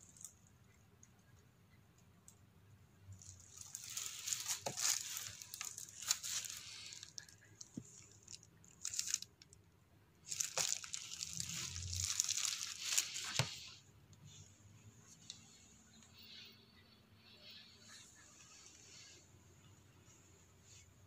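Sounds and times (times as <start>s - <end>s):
plastic film crinkling: 3.2s - 9.6s, 10.2s - 13.8s.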